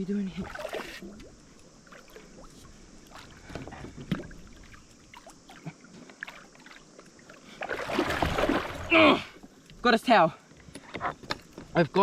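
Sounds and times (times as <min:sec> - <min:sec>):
knocks and splashes at a kayak: 0:00.4 - 0:09.0.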